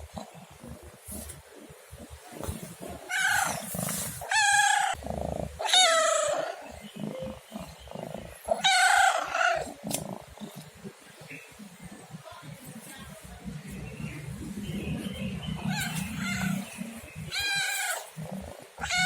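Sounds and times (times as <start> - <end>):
cat meowing: 18.8 - 19.0.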